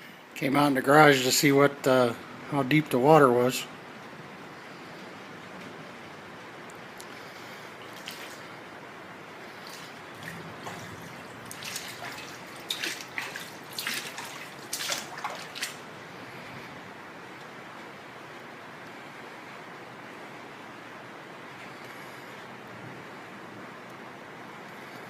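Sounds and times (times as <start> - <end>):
water splashing and sloshing: 7.2 - 16.5.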